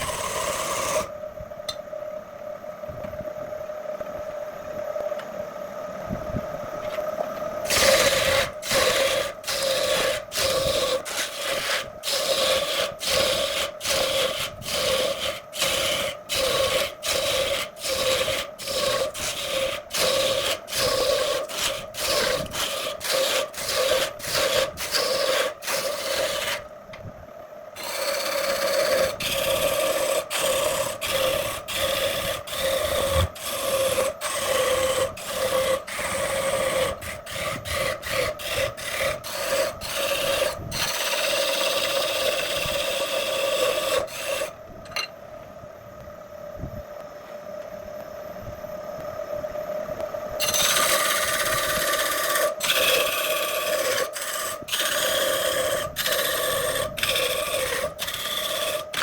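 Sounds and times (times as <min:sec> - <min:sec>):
steady machine hum: 0:00.0 - 0:59.0
hand tool scraping wood: 0:07.7 - 0:26.6, 0:27.8 - 0:44.5, 0:50.4 - 0:59.0.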